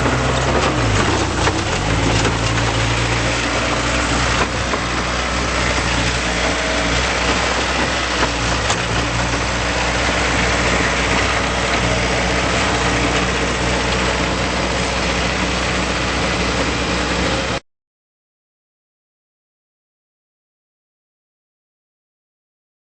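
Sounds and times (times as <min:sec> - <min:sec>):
diesel engine idling: 0:00.0 - 0:17.6.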